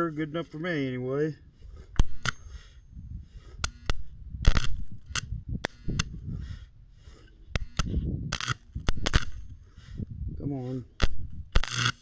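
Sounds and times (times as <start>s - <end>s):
welding arc crackling and popping: 3.6s - 6.2s, 7.6s - 9.6s, 11.0s - 12.0s.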